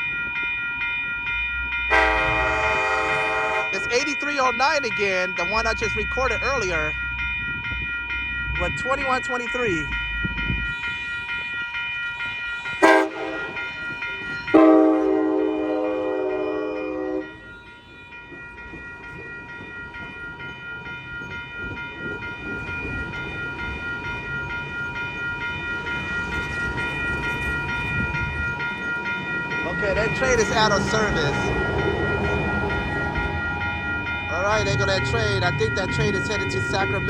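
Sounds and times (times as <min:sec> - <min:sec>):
train horn blasts: 0:01.9 - 0:03.8, 0:12.8 - 0:13.7, 0:14.5 - 0:17.5
train rumbling past: 0:09.8 - 0:37.0.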